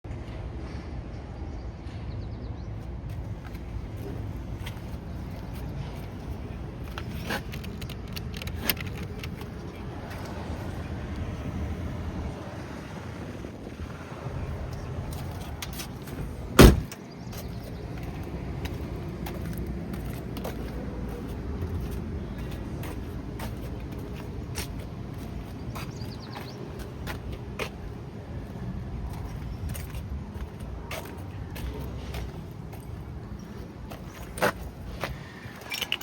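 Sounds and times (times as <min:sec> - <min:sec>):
car engine idling: 0:16.2 - 0:17.0
loud thump: 0:16.6 - 0:17.0.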